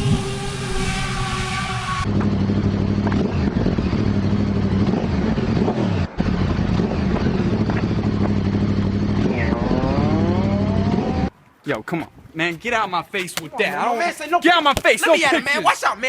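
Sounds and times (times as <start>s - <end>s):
engine running: 0.0s - 11.3s.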